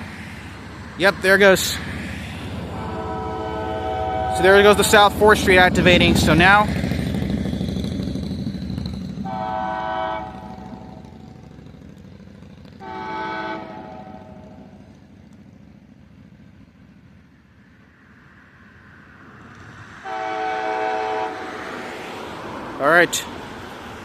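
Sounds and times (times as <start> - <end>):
low train rumble: 0.0 - 24.0
distant locomotive horn blasts: 2.7 - 6.7, 9.2 - 11.4, 12.8 - 14.9, 20.0 - 21.7.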